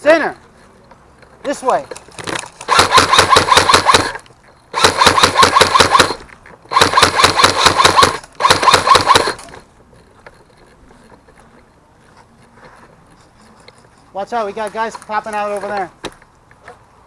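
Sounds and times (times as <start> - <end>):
airsoft gun firing bursts: 2.6 - 9.6.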